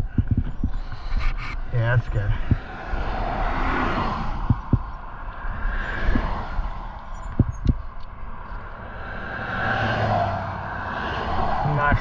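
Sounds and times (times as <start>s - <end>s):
highway traffic road noise: 0.0s - 12.0s
short dull thumps: 4.4s - 4.9s.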